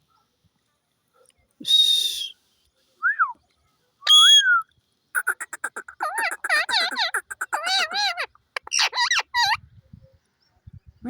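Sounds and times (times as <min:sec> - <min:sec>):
parrot whistling and calling: 0:04.1 - 0:04.6, 0:05.2 - 0:09.6
parrot chattering: 0:05.2 - 0:09.6.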